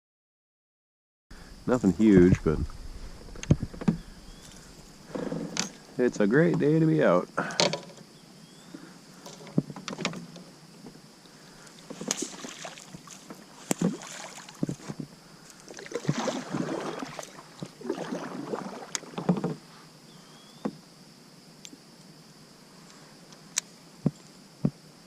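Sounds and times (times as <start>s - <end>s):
sharp knocks: 3.2s - 5.7s
kayak paddle splashing: 11.4s - 19.7s.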